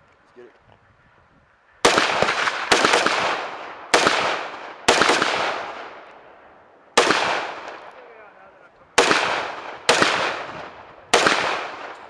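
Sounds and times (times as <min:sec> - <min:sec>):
gunshots with echo: 0:01.8 - 0:06.2, 0:07.0 - 0:08.2, 0:09.0 - 0:12.0.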